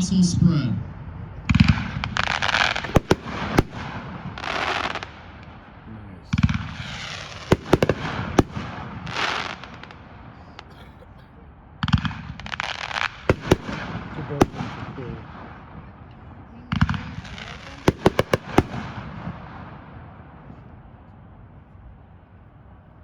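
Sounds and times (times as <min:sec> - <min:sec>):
firework hissing rise: 0:01.5 - 0:05.5, 0:06.3 - 0:10.0
firework cracking breaks: 0:01.5 - 0:05.7, 0:06.3 - 0:10.8, 0:11.9 - 0:15.2, 0:16.8 - 0:19.0.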